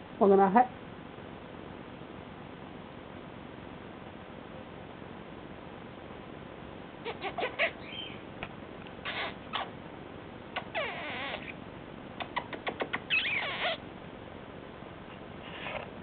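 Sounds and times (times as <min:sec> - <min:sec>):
bird wavering calls: 0:07.0 - 0:08.3, 0:12.2 - 0:13.8.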